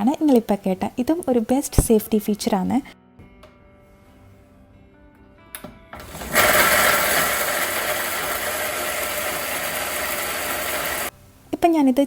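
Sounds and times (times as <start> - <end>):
mixer grinder running: 6.0 - 11.1.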